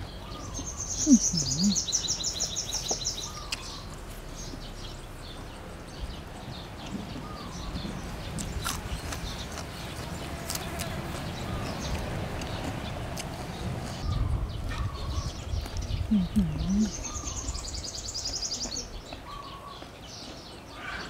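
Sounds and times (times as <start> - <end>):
bird trilling: 0.3 - 3.8
chewing and crunching food: 2.6 - 5.5, 6.2 - 17.2.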